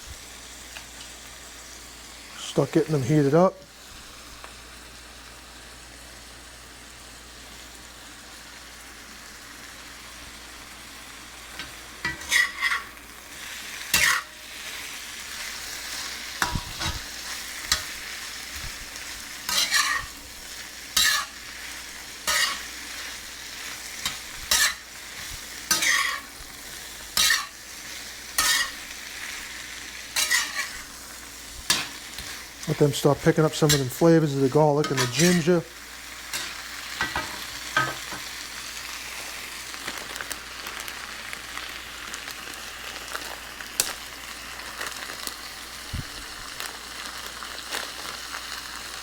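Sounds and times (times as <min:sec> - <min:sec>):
vegetables sizzling in a pan: 0:00.0 - 0:49.0
stirring strokes in a pan: 0:11.2 - 0:40.9.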